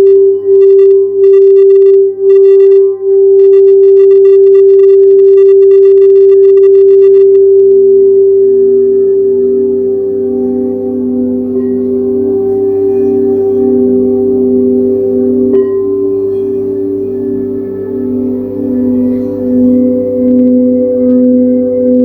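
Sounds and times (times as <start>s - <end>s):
lower singing bowl tone: 7.4s - 22.0s
singing bowl ringing: 8.4s - 20.3s.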